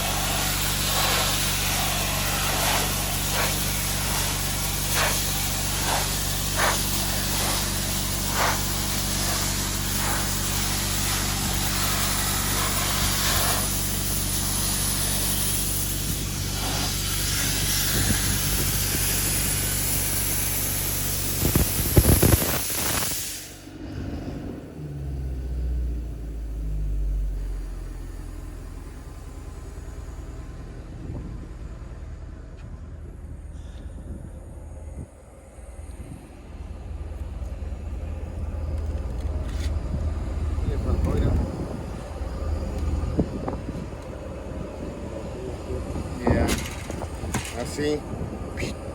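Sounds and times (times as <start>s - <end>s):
sandblaster hissing: 0.0s - 23.8s, 40.6s - 48.9s
low uneven rumble: 23.6s - 48.9s
machine hum: 26.0s - 48.9s.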